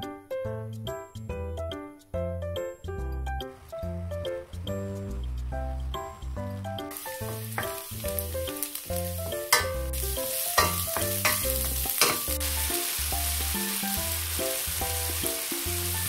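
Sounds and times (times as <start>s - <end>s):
background music: 0.0s - 16.0s
vegetables sizzling in a pan: 6.9s - 16.0s
wooden spoon knocking a pan: 7.2s - 7.9s, 9.5s - 10.0s, 10.6s - 12.4s.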